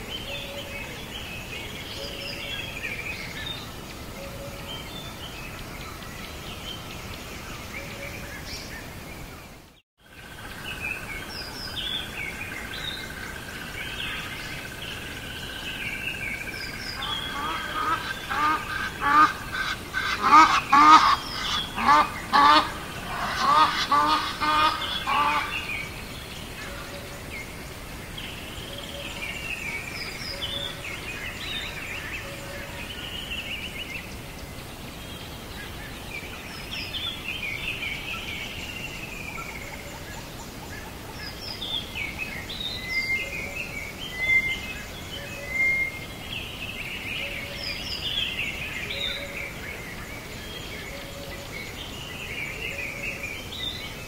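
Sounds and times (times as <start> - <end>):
steady outdoor hiss: 0.0 - 54.0
small birds chirping: 10.4 - 54.0
loud repeated bird calls: 17.0 - 25.9.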